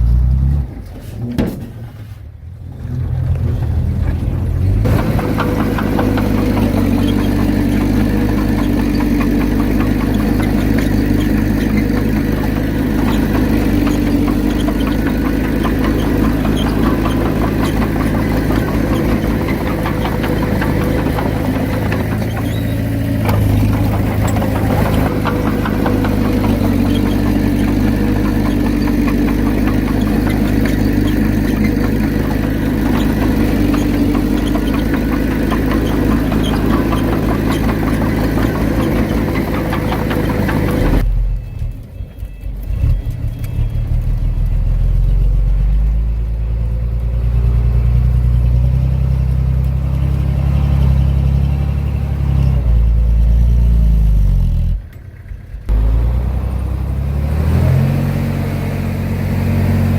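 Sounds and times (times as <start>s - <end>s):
diesel engine running: 0.0s - 59.9s
clattering rattle: 3.1s - 41.0s.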